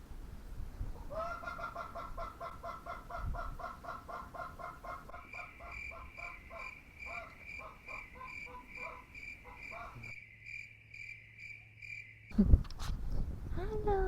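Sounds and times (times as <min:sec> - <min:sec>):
lower pulsed insect calls: 0:05.1 - 0:12.3
cricket chirping: 0:05.1 - 0:12.4.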